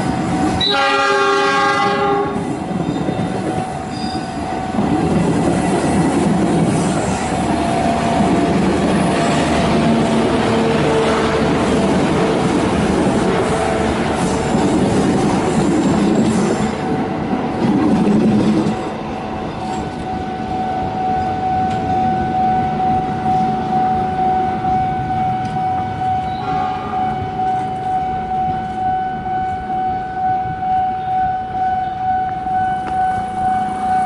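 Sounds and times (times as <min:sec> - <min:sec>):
train coaches rumbling over rails: 0:00.0 - 0:34.0
high warning tone: 0:18.8 - 0:34.0.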